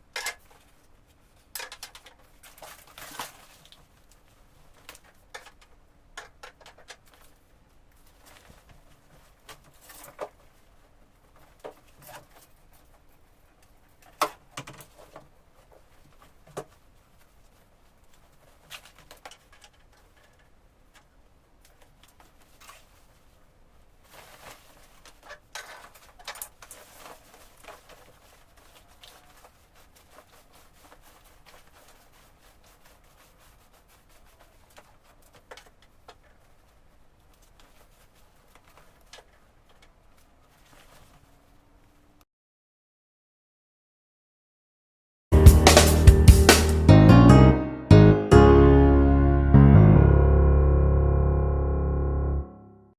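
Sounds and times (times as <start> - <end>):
wooden ladder and packaging handled: 0.0 - 42.0.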